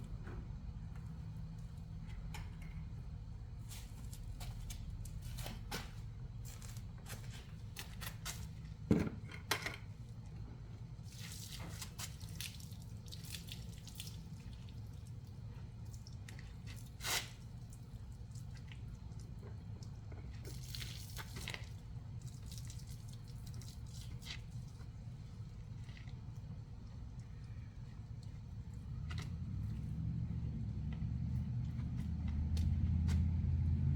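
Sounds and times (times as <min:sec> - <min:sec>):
steady low hum: 0:00.0 - 0:11.1
water spattering and dripping: 0:11.1 - 0:26.7.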